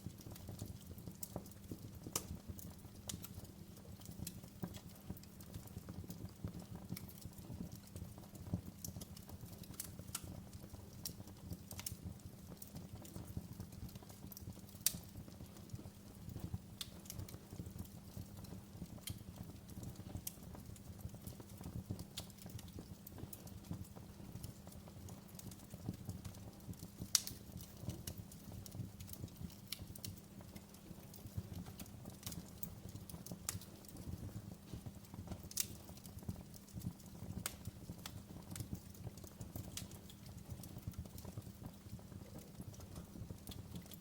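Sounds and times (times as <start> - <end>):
wood fire burning: 0.0 - 44.0.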